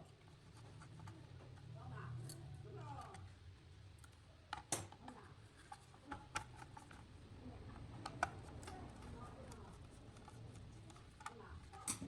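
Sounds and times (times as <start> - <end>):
light clicks and taps: 7.8 - 12.0.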